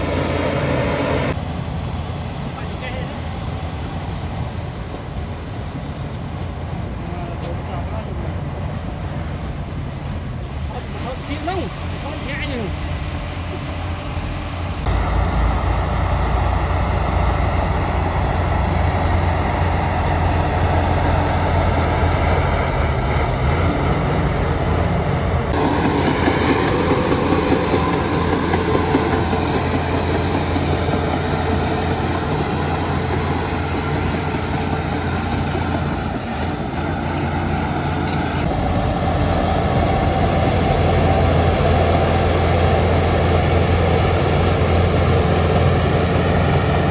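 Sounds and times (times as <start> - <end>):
heavy machinery engine drone: 0.0 - 46.9
mechanical rumble: 13.1 - 46.9.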